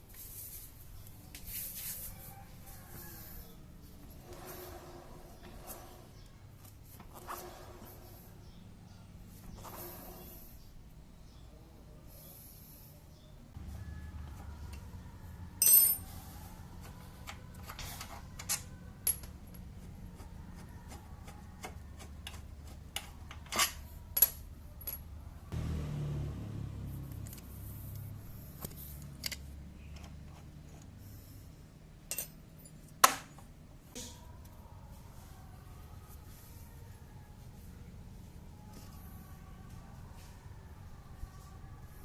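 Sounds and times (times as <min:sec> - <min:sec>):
metal tools clinking: 0:15.6 - 0:16.1, 0:32.1 - 0:33.0.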